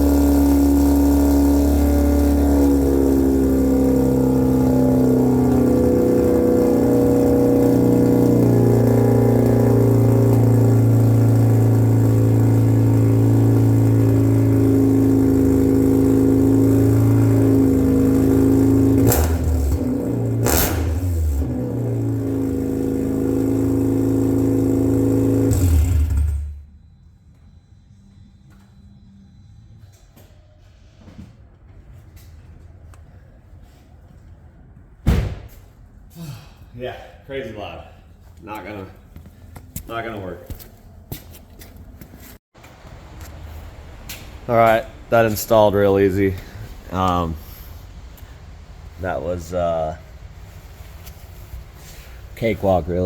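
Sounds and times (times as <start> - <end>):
rotary engine idling loud: 0.0 - 26.6
engine revving bursts: 0.0 - 26.7.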